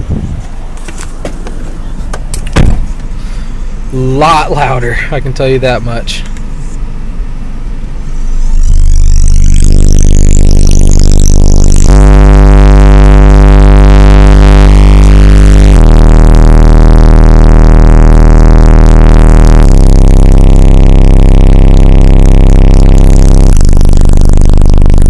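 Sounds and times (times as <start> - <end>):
bass-heavy electronic music: 8.0 - 25.0.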